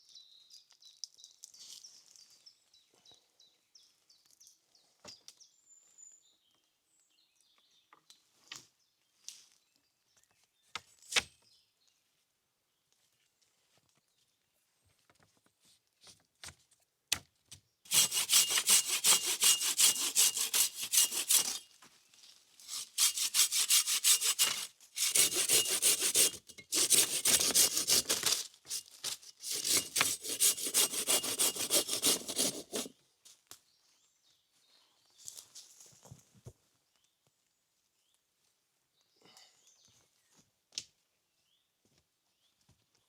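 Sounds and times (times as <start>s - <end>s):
hand saw cutting wood: 17.9s - 21.7s, 22.7s - 32.9s.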